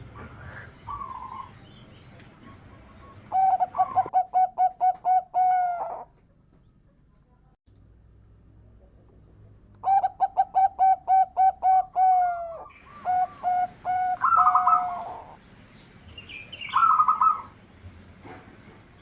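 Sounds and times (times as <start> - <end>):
dove cooing: 0.0 - 1.6, 2.3 - 6.2, 9.8 - 15.4, 16.6 - 17.6.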